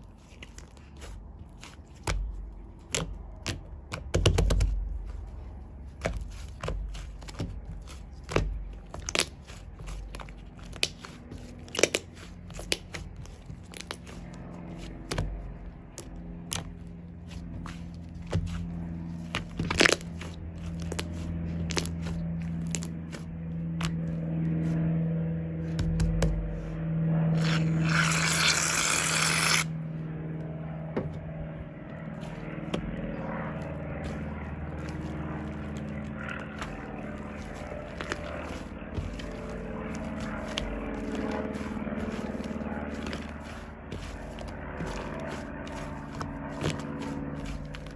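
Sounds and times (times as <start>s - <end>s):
low steady hum: 0.0s - 47.9s
shaving foam scraping and crackling: 0.0s - 47.9s
aerosol can spraying: 27.5s - 29.7s.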